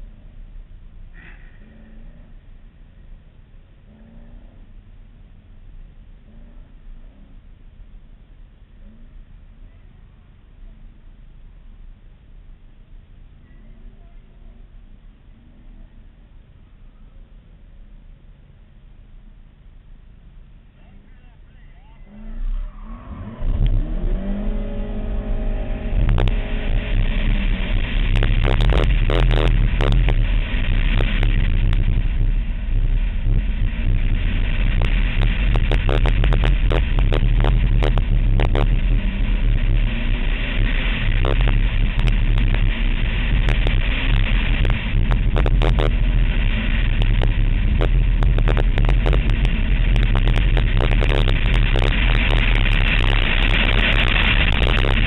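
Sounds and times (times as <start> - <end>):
car engine accelerating hard: 22.0 - 55.0.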